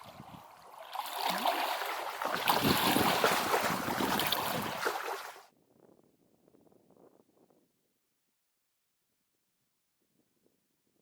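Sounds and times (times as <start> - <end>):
wind buffeting microphone: 0.0 - 0.7, 1.3 - 5.9.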